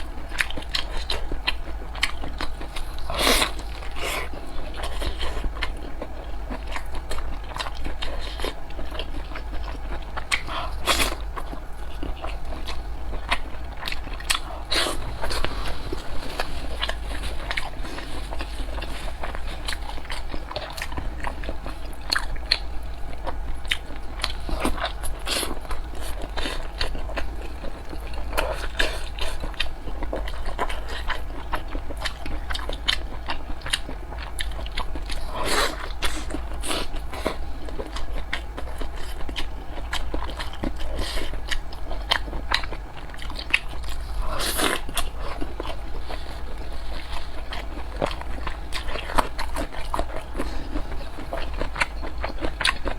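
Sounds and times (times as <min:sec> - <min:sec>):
chewing dumplings: 0:00.0 - 0:52.9.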